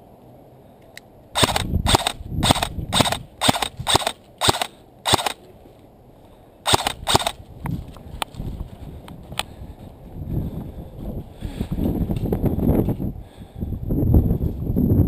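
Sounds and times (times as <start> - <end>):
airsoft gun shots: 1.4 - 5.4, 6.7 - 7.4.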